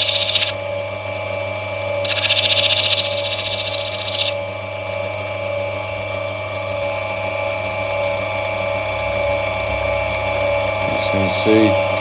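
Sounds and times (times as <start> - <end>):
grinding machine motor humming: 0.0 - 0.6, 2.1 - 4.4.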